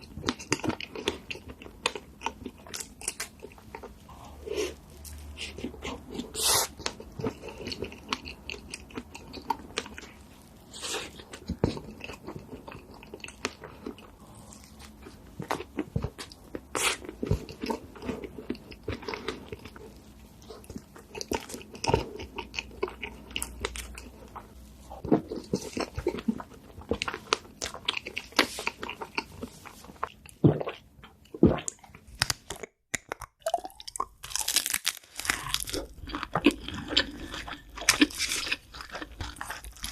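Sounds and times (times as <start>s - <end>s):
person crunching and chewing: 0.0s - 39.9s
crisp snaps and clicks: 32.2s - 35.8s.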